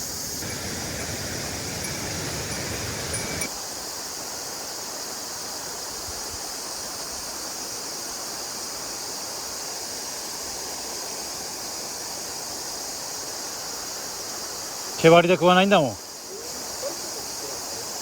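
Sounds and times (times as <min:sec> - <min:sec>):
stream water flowing: 0:00.0 - 0:03.5.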